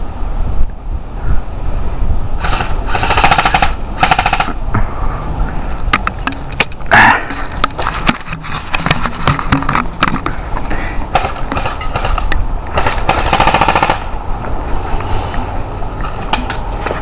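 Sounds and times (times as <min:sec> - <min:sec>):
airsoft rifle firing full auto: 0:02.4 - 0:04.6, 0:11.1 - 0:14.1
sharp clicks and snaps: 0:11.2 - 0:13.3.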